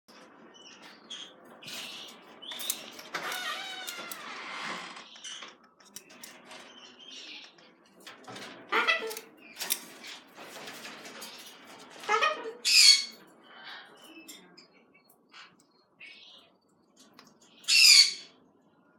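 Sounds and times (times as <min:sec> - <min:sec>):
birds squawking: 0:08.7 - 0:09.4, 0:12.0 - 0:13.9, 0:17.6 - 0:18.4.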